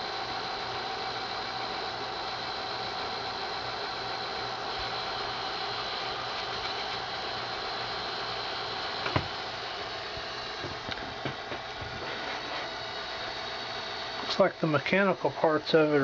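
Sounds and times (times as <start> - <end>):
tape transport whir: 8.9 - 15.6.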